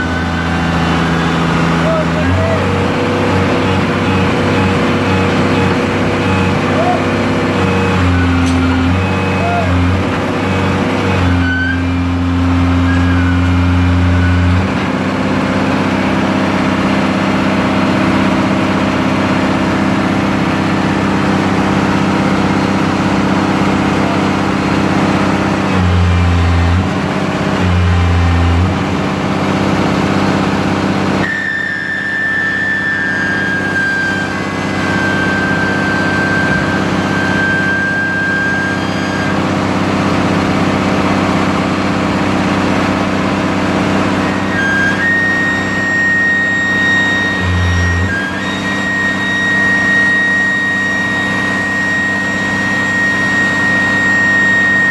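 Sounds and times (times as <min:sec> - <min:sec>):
heavy equipment engine running: 0:00.0 - 0:54.9
loud low hum: 0:00.0 - 0:54.9.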